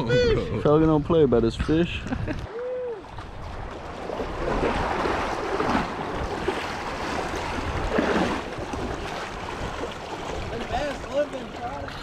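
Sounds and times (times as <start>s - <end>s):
wind noise on microphone: 0.0s - 11.0s
water sloshing around jet ski: 1.6s - 12.0s.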